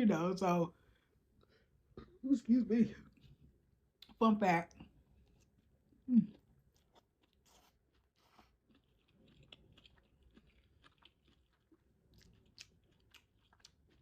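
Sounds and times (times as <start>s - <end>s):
chewing food: 3.0s - 14.0s.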